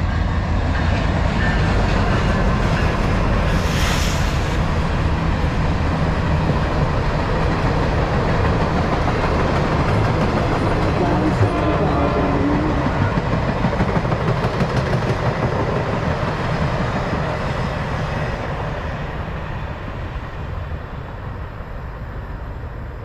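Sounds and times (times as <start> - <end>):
train wheels clattering on rails: 6.0 - 18.6.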